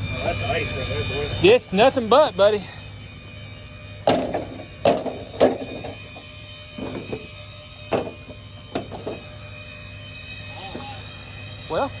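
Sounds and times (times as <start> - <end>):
sharp knocks or crunches: 4.1 - 6.2.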